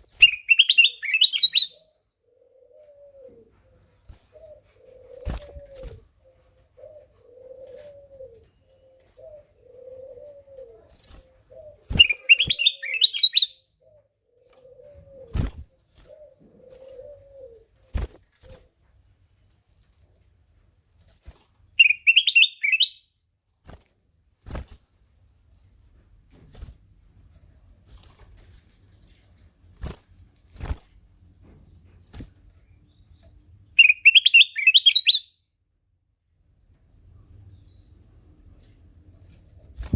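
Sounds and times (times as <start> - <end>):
songbird warbling: 0.0 - 2.6, 11.5 - 14.0, 21.8 - 23.0, 33.8 - 35.3
low cooing call: 2.3 - 3.5, 6.8 - 10.9.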